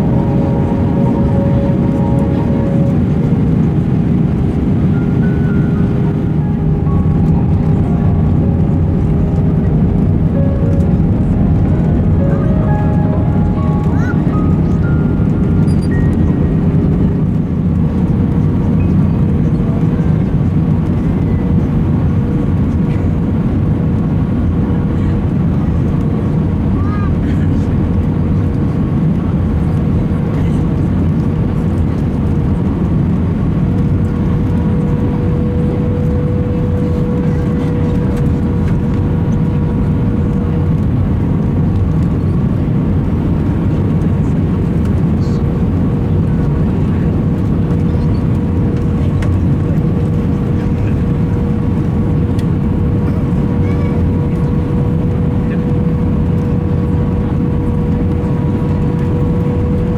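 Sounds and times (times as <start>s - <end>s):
constant tone: 0.0s - 19.4s
aircraft cabin noise: 0.0s - 59.9s.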